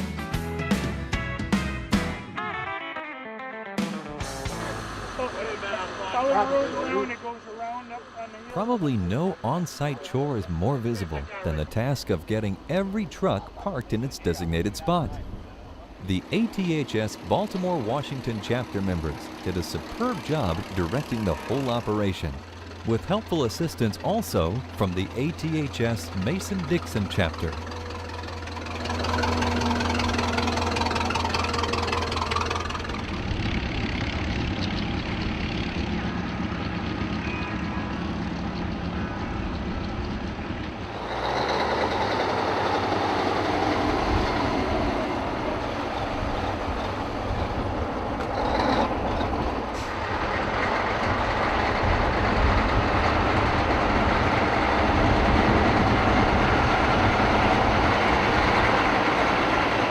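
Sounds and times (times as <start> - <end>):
heavy truck engines: 4.2 - 59.9.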